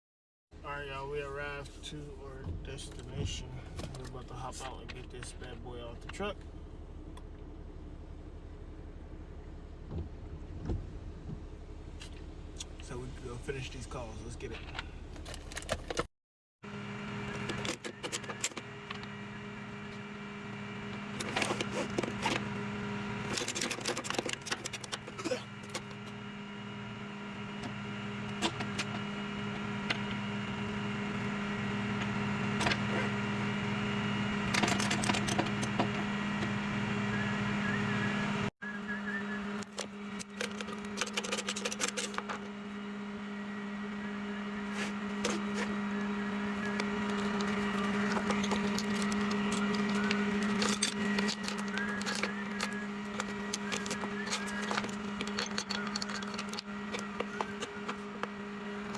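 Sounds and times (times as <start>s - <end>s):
tow truck engine humming: 0.6s - 58.9s
metal chains rattling and clanking: 46.6s - 57.7s.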